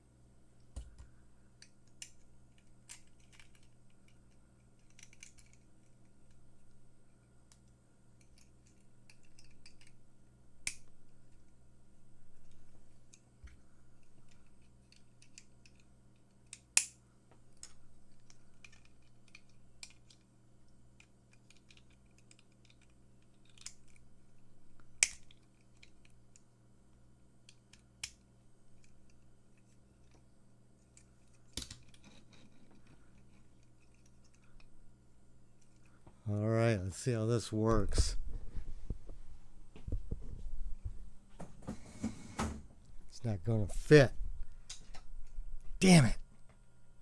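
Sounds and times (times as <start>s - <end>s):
steady low hum: 0.0s - 47.0s
plastic toy parts clicking: 1.6s - 6.0s, 7.5s - 10.0s, 14.0s - 17.0s, 17.6s - 20.3s, 21.0s - 24.0s, 25.0s - 26.4s.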